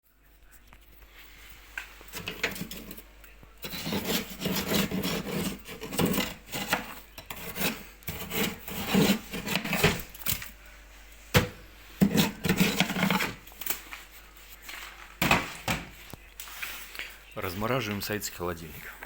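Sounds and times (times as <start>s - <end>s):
ice being scraped in freezer: 2.1s - 10.5s, 12.0s - 13.9s.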